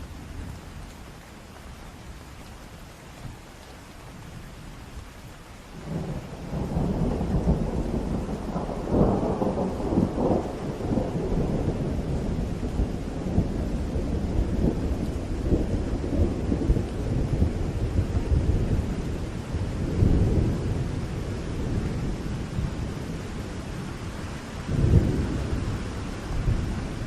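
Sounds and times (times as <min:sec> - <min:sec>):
steady rain: 0:00.0 - 0:27.0
rolling thunder: 0:05.8 - 0:24.0, 0:24.6 - 0:27.0.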